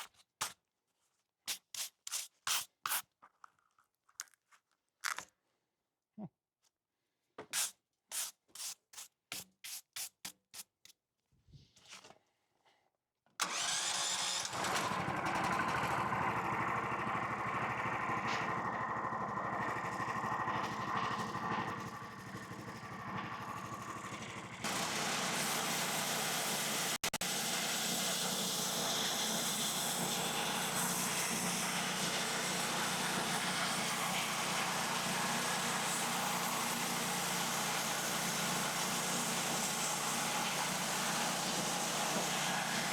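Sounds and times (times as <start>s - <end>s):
sawmill gas engine running: 13.4s - 42.9s.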